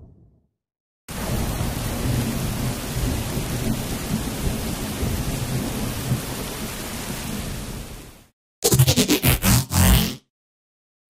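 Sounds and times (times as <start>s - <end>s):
steady rain: 1.1s - 8.3s
low rumble of thunder: 1.2s - 6.5s.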